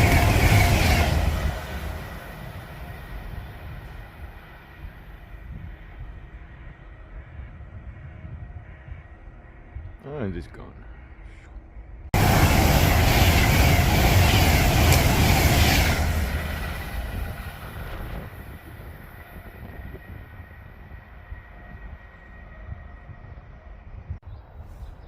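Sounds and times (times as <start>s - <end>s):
train passing at speed: 0.0s - 7.5s, 12.1s - 24.2s.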